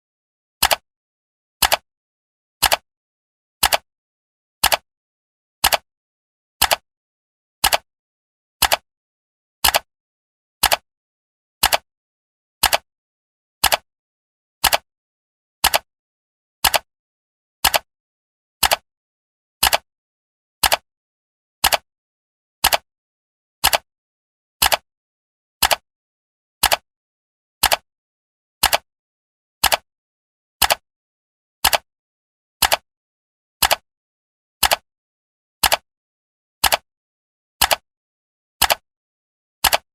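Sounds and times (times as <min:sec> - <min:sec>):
clock ticking: 0:07.6 - 0:07.8, 0:08.6 - 0:08.8, 0:11.6 - 0:11.8, 0:12.6 - 0:12.8, 0:13.6 - 0:13.8, 0:14.6 - 0:14.8, 0:15.6 - 0:15.9, 0:21.6 - 0:21.8, 0:23.6 - 0:23.8, 0:24.6 - 0:24.8, 0:26.6 - 0:26.8, 0:27.6 - 0:27.8, 0:28.6 - 0:28.8, 0:29.6 - 0:29.8, 0:30.6 - 0:30.8, 0:31.6 - 0:31.8, 0:32.6 - 0:32.8, 0:33.6 - 0:33.8, 0:34.6 - 0:34.8, 0:35.6 - 0:35.8, 0:36.6 - 0:36.8, 0:38.6 - 0:38.8, 0:39.6 - 0:39.9.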